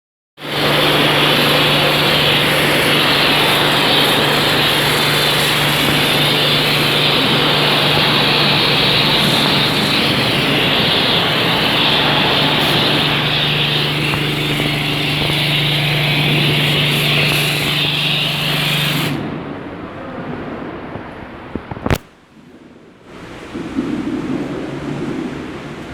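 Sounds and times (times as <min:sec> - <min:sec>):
pressure washer spraying water: 0:00.4 - 0:19.4
pump humming: 0:00.4 - 0:19.4.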